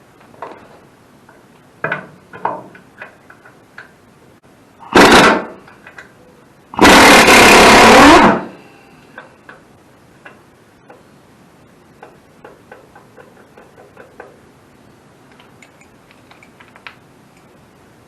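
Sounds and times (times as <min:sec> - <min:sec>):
handheld power tool: 0:04.8 - 0:05.6, 0:06.8 - 0:08.5.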